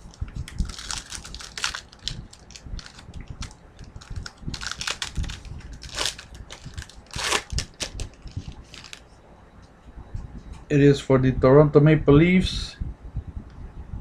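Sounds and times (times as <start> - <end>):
wrapper tearing and crinkling: 0.5 - 9.0.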